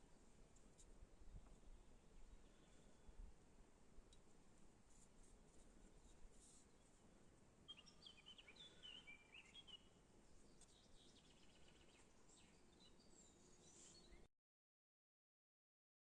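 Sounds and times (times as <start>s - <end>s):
faint bird chirps: 2.2s - 3.1s, 7.6s - 14.3s.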